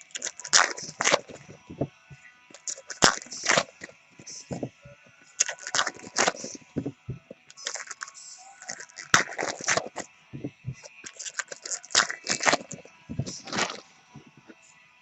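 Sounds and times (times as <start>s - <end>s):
foil wrappers and cards crinkling: 0.0s - 1.8s, 2.6s - 14.6s.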